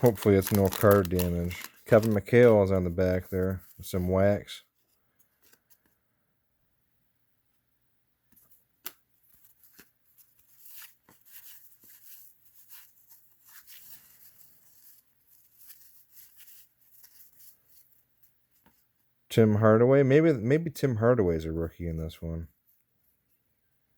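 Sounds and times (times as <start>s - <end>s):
trading cards rustling and clicking: 0.0s - 6.0s, 8.3s - 18.9s.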